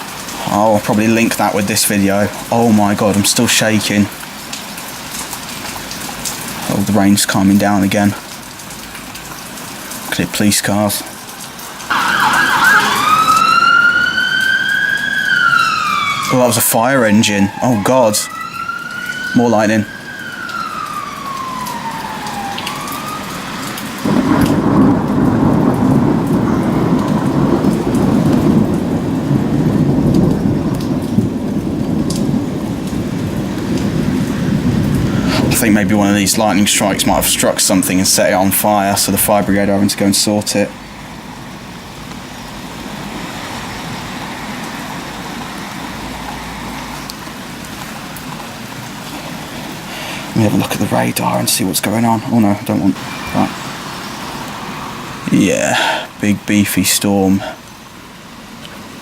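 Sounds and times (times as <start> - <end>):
heavy rain: 0.0 - 59.0
traffic on wet road: 0.0 - 59.0
emergency vehicle siren: 11.8 - 29.0, 53.0 - 55.3
thunder rumble: 11.8 - 39.7.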